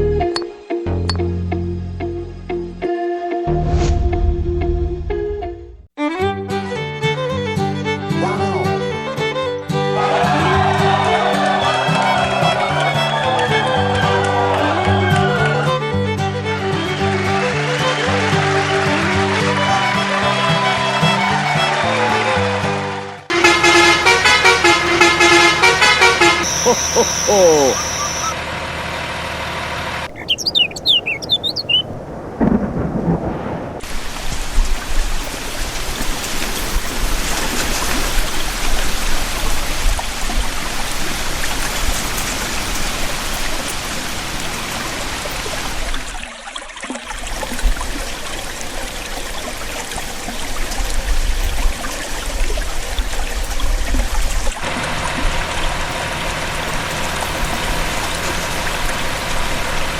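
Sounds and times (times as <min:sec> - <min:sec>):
heavy rain: 0:23.3 - 0:28.6, 0:29.4 - 0:46.2, 0:47.1 - 0:59.9
short high chirps: 0:26.4 - 0:28.4, 0:30.1 - 0:31.8
thunder rumbling: 0:30.1 - 0:45.2.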